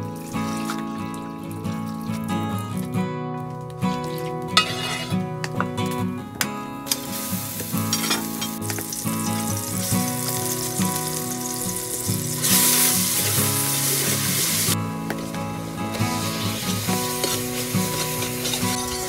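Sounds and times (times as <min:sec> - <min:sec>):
spice paste sizzling in oil: 0:04.1 - 0:05.1, 0:06.9 - 0:14.8, 0:15.8 - 0:19.0.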